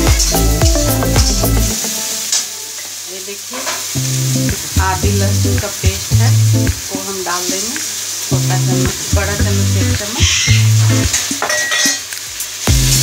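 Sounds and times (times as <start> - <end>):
music with rhythmic bass: 0.0 - 1.8, 4.0 - 6.8, 8.3 - 11.2, 12.7 - 13.0
vegetables sizzling in oil: 0.0 - 13.0
metal spatula scraping a pan: 10.2 - 12.0.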